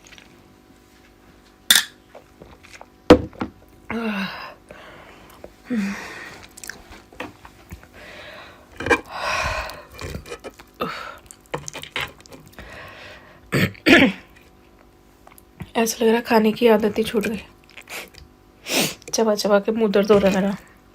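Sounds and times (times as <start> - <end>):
person chewing food: 2.1 - 3.0, 6.2 - 8.0, 8.8 - 13.0, 14.3 - 15.7, 16.8 - 18.4.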